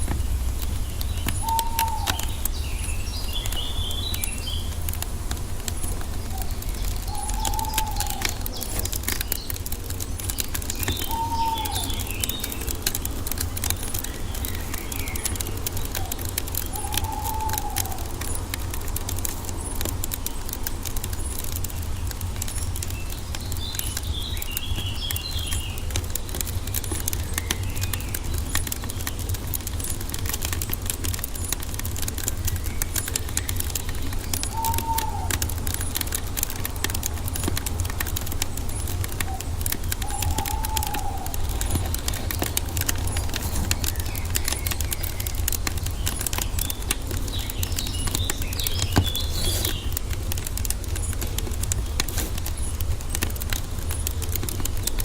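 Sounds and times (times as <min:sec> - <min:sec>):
low rumble: 0:00.0 - 0:09.4
small birds chirping: 0:00.0 - 0:55.0
wood fire crackling: 0:00.0 - 0:55.0
bird call: 0:00.1 - 0:04.8, 0:05.8 - 0:09.6, 0:10.4 - 0:12.8, 0:14.0 - 0:18.4, 0:34.1 - 0:36.7, 0:38.6 - 0:50.0.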